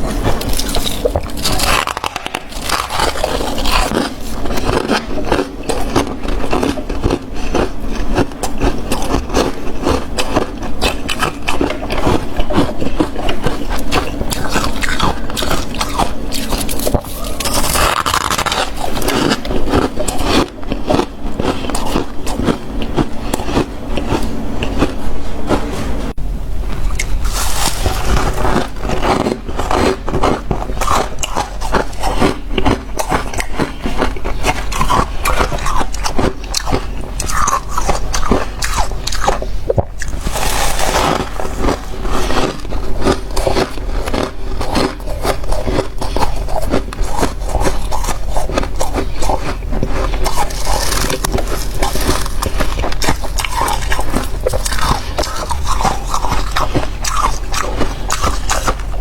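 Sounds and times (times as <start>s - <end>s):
ice crunching while chewed: 0.0s - 25.9s, 26.8s - 59.0s.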